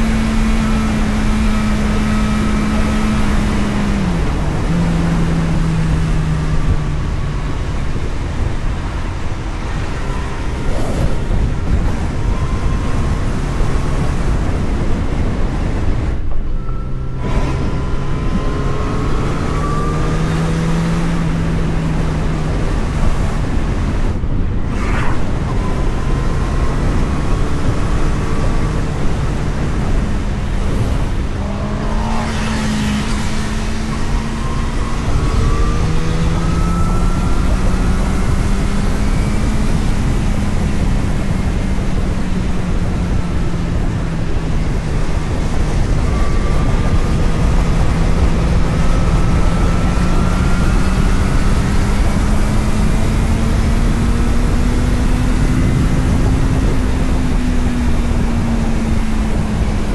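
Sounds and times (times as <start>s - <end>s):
wind and road noise: 0.0s - 59.9s.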